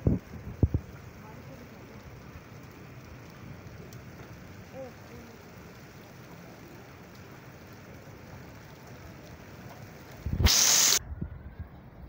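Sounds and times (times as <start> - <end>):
heavy rain hissing: 0.0 - 11.0
loud rush of noise: 10.2 - 11.6.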